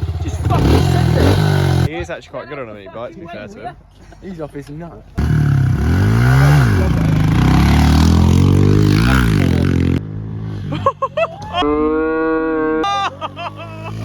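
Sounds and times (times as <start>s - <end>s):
mini bike engine revving: 0.0s - 1.9s, 5.2s - 10.0s.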